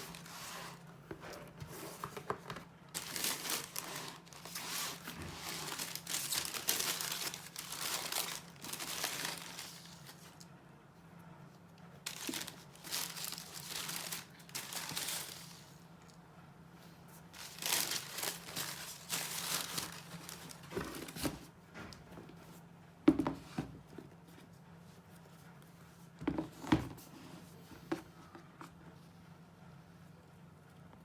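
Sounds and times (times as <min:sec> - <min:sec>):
wrapping crinkling: 0:00.0 - 0:00.9, 0:01.7 - 0:10.5, 0:12.0 - 0:15.9, 0:17.3 - 0:21.3.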